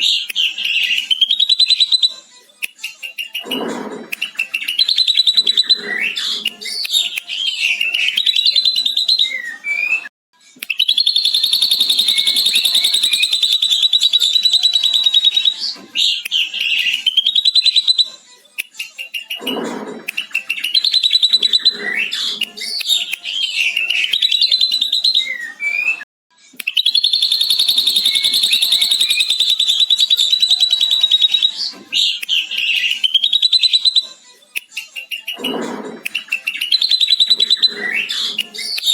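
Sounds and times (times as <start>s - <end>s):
bird whistled phrases: 0.0s - 2.2s, 4.2s - 10.1s, 10.7s - 18.2s, 20.2s - 26.0s, 26.6s - 34.2s, 34.8s - 38.9s
bird chattering trill: 10.8s - 15.6s, 26.8s - 31.6s.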